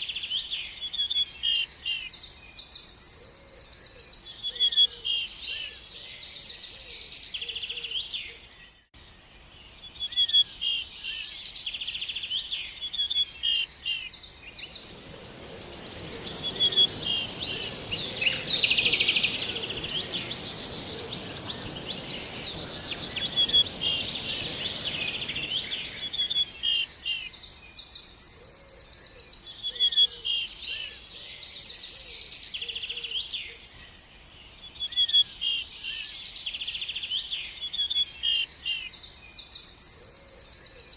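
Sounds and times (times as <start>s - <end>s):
songbirds singing: 11.8s - 35.1s
steady hiss: 14.4s - 27.0s.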